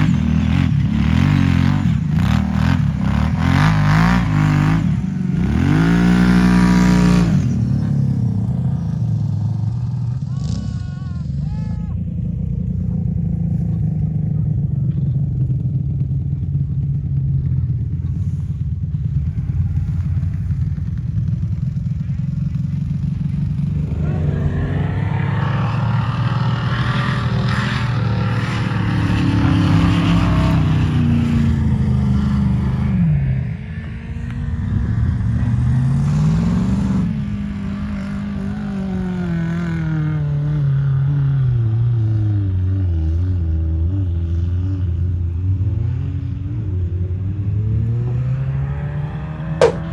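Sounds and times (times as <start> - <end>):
vehicle engine revving: 0.0 - 10.9, 19.2 - 37.8, 47.5 - 49.9.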